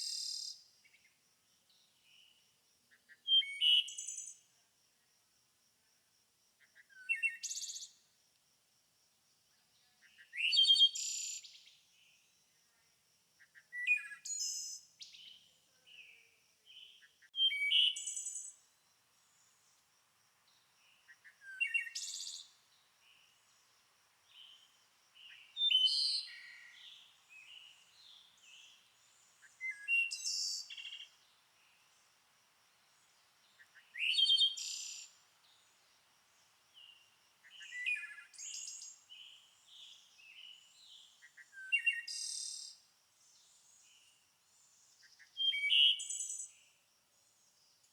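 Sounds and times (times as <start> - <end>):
songbird singing: 0.0 - 4.6, 6.6 - 8.1, 9.5 - 12.8, 13.4 - 47.9
soft bird chirps: 13.4 - 19.8, 20.5 - 32.1, 33.0 - 46.8.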